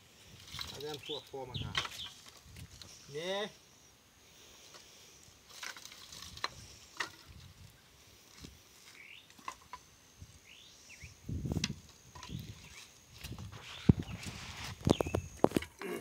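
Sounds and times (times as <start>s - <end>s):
bird chirps: 0.8s - 2.2s, 8.9s - 11.2s, 13.6s - 15.4s.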